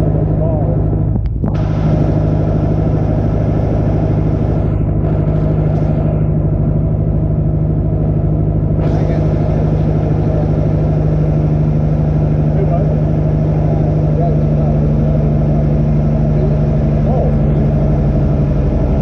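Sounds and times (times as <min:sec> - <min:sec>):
small airplane engine droning: 0:00.0 - 0:19.0
hiss: 0:08.8 - 0:11.2.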